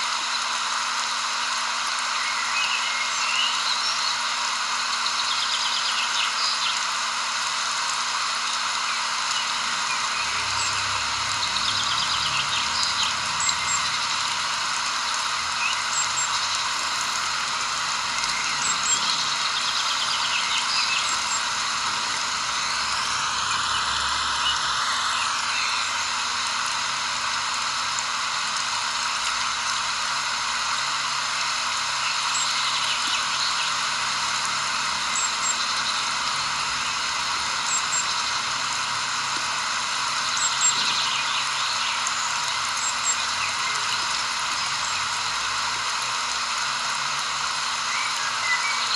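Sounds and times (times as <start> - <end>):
outdoor ambient hiss: 0.0 - 48.9
faint high chirps: 8.8 - 27.3, 28.5 - 46.8.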